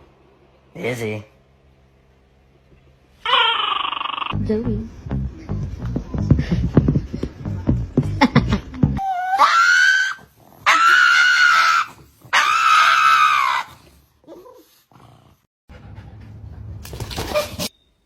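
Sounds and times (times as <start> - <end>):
dog yowling: 3.2 - 4.4, 9.0 - 13.8.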